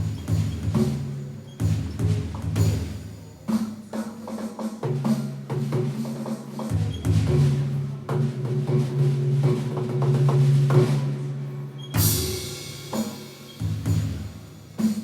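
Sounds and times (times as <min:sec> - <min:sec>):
bright cymbal crash: 0:12.0 - 0:15.0
electronic timpani rolls and strikes: 0:12.0 - 0:15.0.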